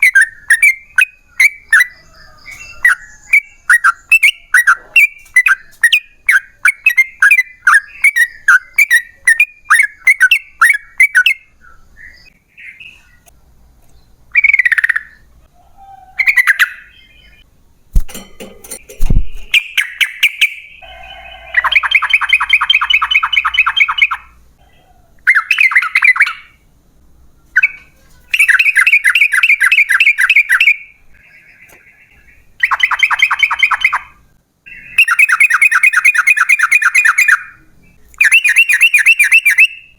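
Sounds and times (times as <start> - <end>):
bird singing bubbly notes: 31.6 - 37.5.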